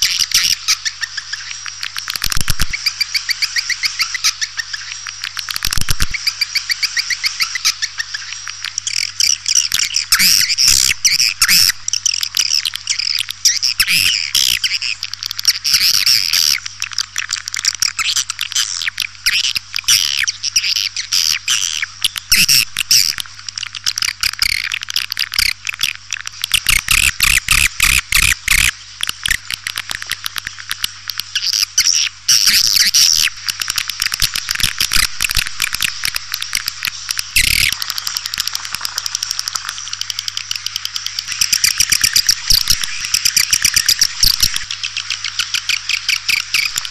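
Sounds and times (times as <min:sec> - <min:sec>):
swiftlets twittering: 0:31.3 - 0:46.9.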